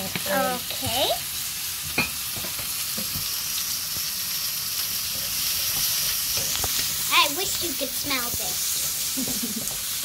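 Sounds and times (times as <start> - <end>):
onion and garlic sizzling in oil: 0.0 - 10.0
wooden spatula tapping and scraping: 5.1 - 6.9.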